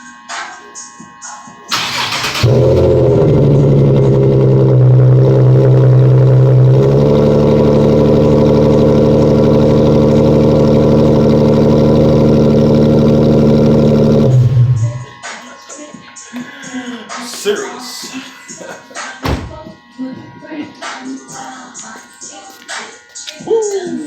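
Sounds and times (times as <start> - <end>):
loud car exhaust drone: 0.0 - 15.4.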